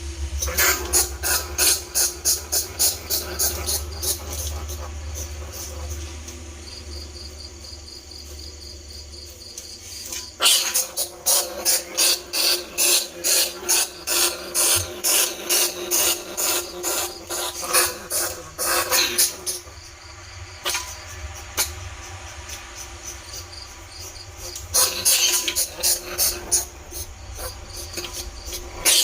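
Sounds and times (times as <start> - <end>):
faint hum: 0.0 - 29.0
rat squeaks high chirps: 24.4 - 29.0.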